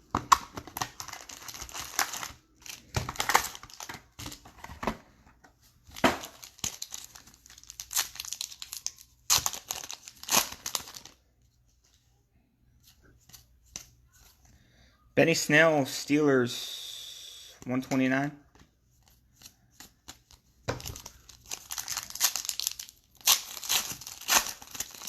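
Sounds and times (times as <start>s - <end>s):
plastic wrapping tearing and crinkling: 0.3s - 4.4s, 6.2s - 11.2s, 20.8s - 25.0s.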